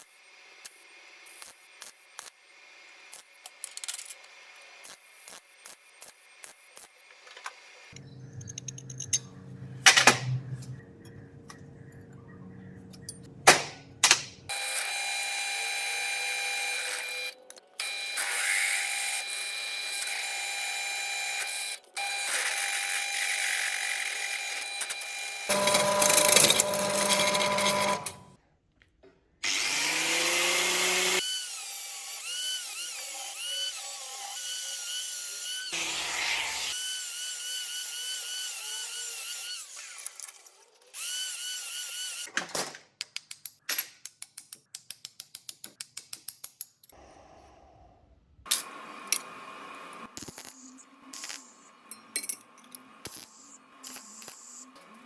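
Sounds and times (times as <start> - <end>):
power tool motor whining: 14.5 - 28.3, 29.4 - 42.3.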